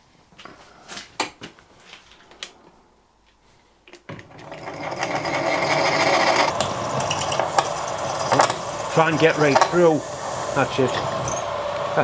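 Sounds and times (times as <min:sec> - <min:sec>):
milling machine drilling metal: 0:04.2 - 0:12.0.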